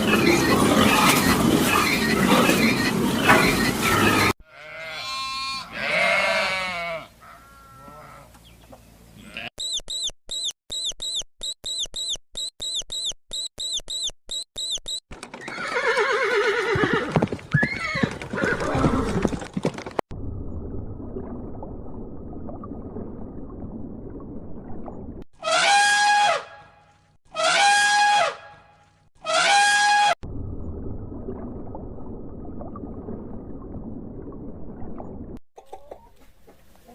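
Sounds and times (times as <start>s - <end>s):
buzzy bleating animal calls: 3.9s - 8.3s, 9.2s - 9.5s
short high chirps: 9.6s - 15.0s.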